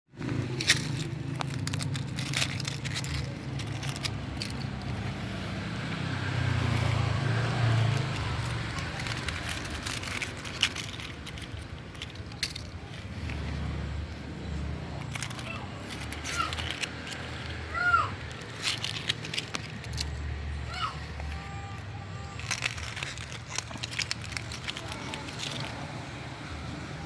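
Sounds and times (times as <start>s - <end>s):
dried leaves crunching: 0.2s - 27.0s.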